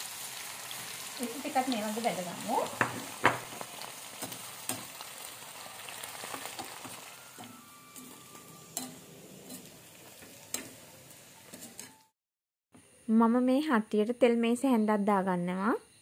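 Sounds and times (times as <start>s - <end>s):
fish sizzling in hot oil: 0.0s - 12.1s.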